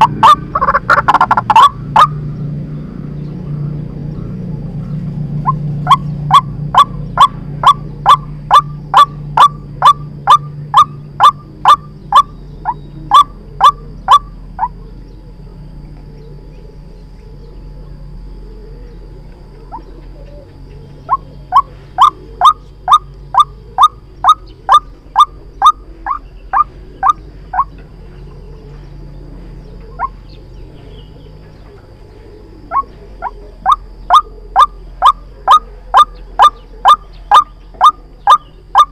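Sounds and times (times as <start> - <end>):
waterhen calling sharp notes: 0.0 - 2.2, 5.4 - 14.7, 32.7 - 38.9.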